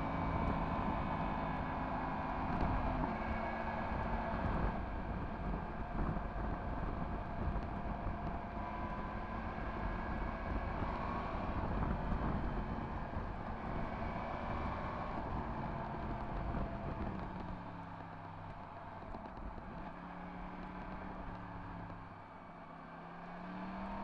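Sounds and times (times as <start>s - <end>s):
motorcycle engine running: 0.2s - 24.0s
wind noise on microphone: 2.4s - 17.6s.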